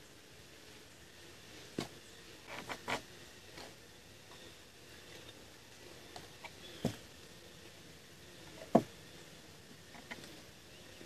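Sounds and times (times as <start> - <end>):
wooden branches knocking and rustling: 1.7 - 3.8, 6.1 - 7.3, 8.5 - 9.0.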